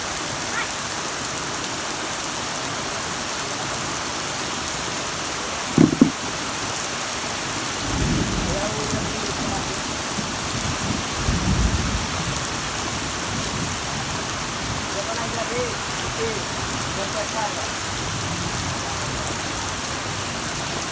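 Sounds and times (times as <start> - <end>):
heavy rain falling: 0.0 - 20.9
loud thumps: 5.8 - 6.4.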